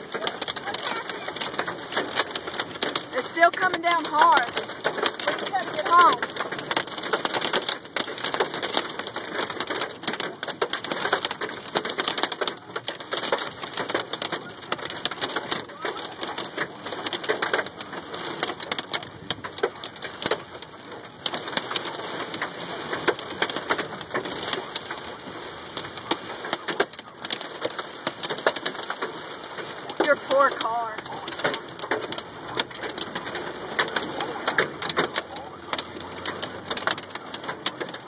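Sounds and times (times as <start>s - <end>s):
hail clattering on a car: 0.0s - 38.0s
heavy rain: 0.0s - 38.0s.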